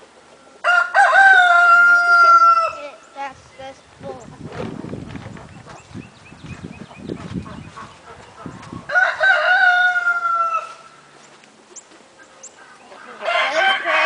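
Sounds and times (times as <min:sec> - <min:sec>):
rooster crowing: 0:00.6 - 0:02.9, 0:08.9 - 0:10.9, 0:13.2 - 0:14.0.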